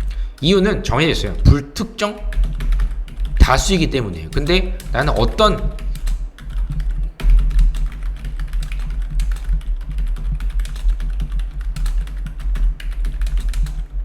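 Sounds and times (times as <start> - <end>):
steady low hum: 0.0 - 14.0
typing on computer keyboard: 2.1 - 3.6, 4.3 - 13.9.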